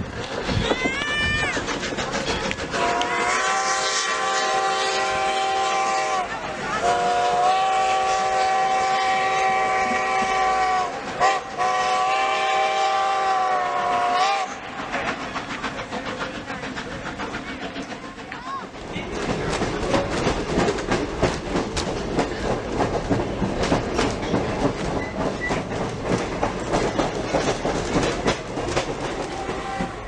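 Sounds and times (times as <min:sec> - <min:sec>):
train running noise: 0:00.0 - 0:30.0
steam locomotive whistle blasts: 0:02.8 - 0:14.6, 0:29.2 - 0:30.0.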